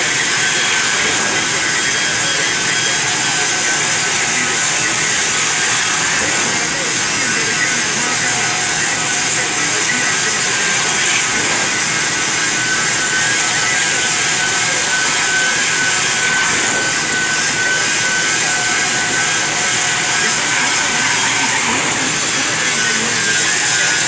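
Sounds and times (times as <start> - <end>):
lathe hissing with high whine: 0.0 - 24.0.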